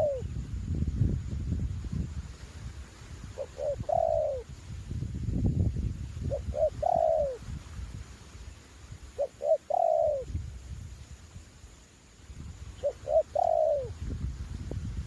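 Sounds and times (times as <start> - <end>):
dove cooing: 0.0 - 0.3, 3.4 - 4.5, 6.3 - 7.4, 9.2 - 10.4, 12.8 - 14.0
low wind rumble on microphone: 0.0 - 15.0.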